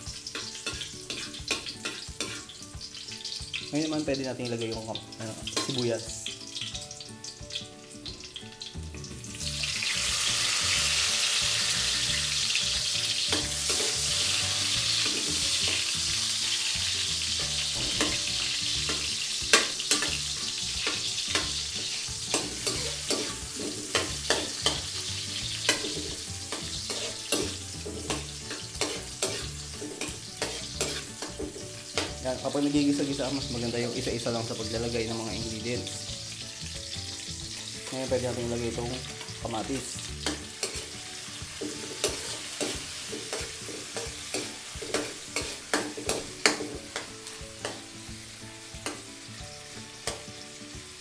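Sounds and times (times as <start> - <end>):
onions frying in hot oil: 0.0 - 51.0
metal spoon scraping wok: 22.3 - 24.9, 25.5 - 32.2, 40.2 - 40.9, 41.6 - 47.8.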